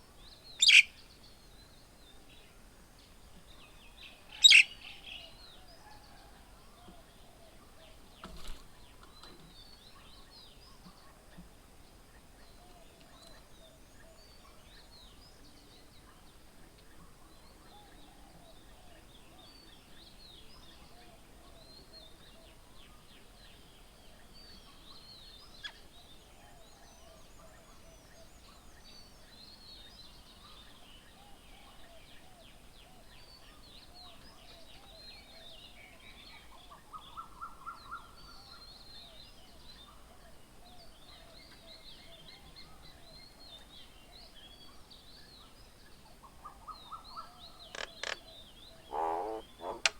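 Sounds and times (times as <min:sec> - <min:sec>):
birds chirping: 0:00.6 - 0:00.9, 0:04.4 - 0:04.8, 0:45.7 - 0:49.9.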